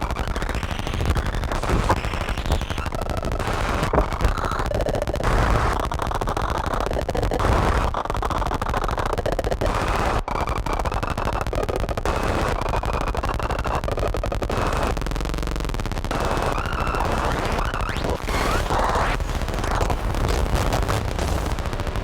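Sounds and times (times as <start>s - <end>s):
distorted synthesizer crackling: 0.0s - 22.0s
low synthesizer drone: 18.2s - 22.0s.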